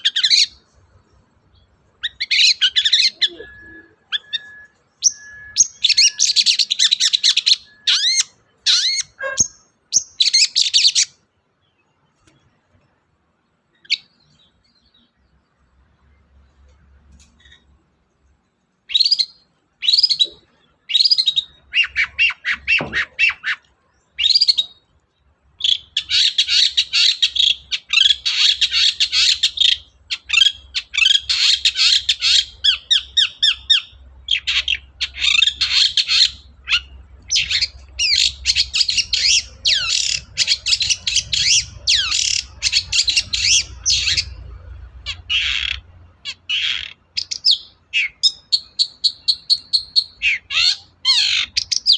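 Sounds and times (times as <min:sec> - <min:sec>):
bird singing harsh chattering: 0:00.0 - 0:11.9, 0:18.9 - 0:51.9.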